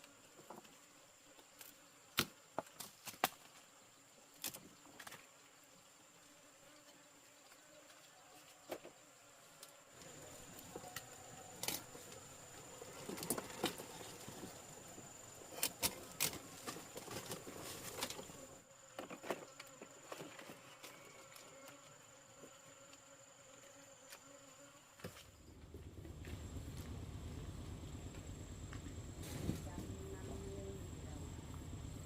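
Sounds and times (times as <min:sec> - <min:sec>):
high-pitched insect buzz: 0:03.4 - 0:25.6.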